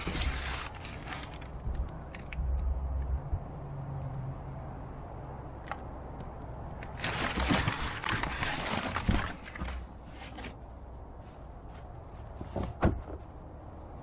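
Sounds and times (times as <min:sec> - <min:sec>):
packing material rustling: 0:00.0 - 0:01.6, 0:07.0 - 0:10.6.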